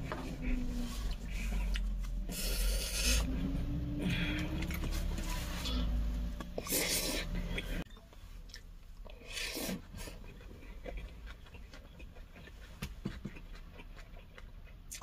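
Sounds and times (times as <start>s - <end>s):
soft chewing with mouth clicks: 0.0s - 3.7s, 4.3s - 15.0s.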